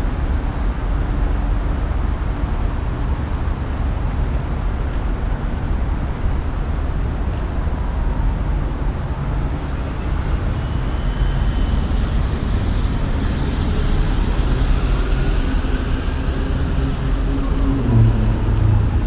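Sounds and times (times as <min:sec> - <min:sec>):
vehicle engine rumbling: 0:07.3 - 0:19.0
rising hiss: 0:09.7 - 0:19.0.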